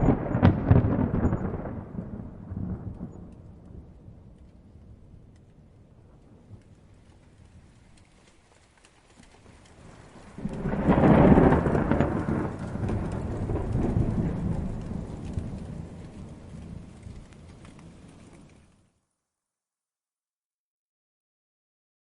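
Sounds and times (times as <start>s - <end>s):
distant thunder rolling: 0.0s - 7.9s, 9.5s - 18.7s
rain: 0.0s - 19.2s.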